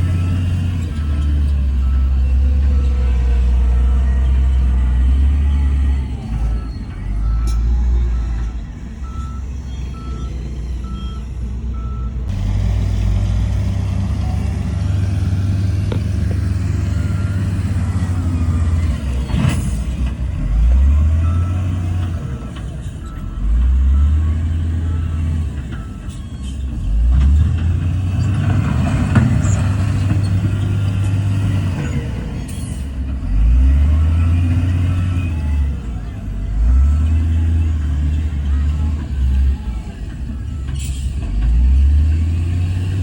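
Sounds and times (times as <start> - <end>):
reversing alarm beeping: 0.0 - 12.3, 14.2 - 27.0
diesel engines revving: 0.0 - 43.0.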